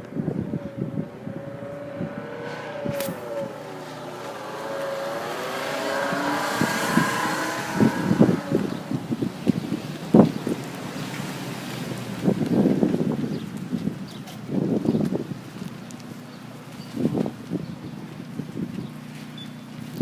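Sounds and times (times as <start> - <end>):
wavering whine: 0.0 - 10.5
wind buffeting microphone: 0.0 - 20.0.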